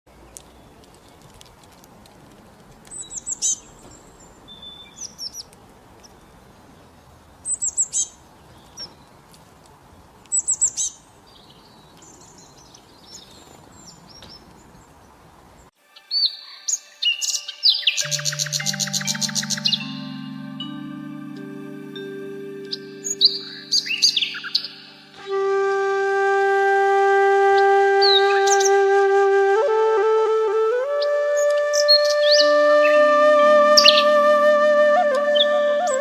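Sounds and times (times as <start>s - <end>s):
small birds chirping: 0.1s - 1.7s, 2.8s - 25.2s
high tonal bird notes: 15.8s - 36.0s.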